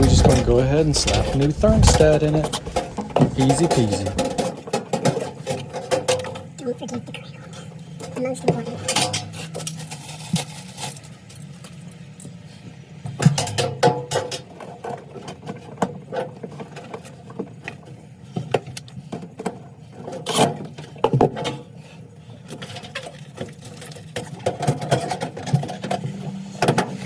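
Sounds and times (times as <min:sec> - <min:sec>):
steady low hum: 0:00.0 - 0:04.4.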